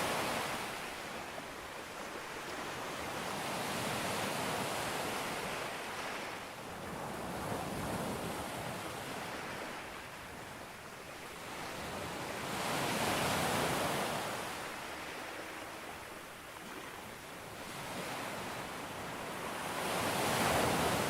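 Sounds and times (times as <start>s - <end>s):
sea waves breaking: 16.6s - 21.0s.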